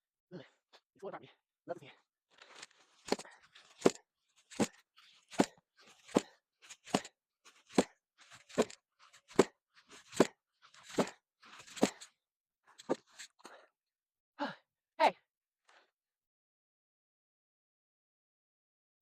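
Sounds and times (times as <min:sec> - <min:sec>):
axe chopping log: 0:08.6 - 0:12.0.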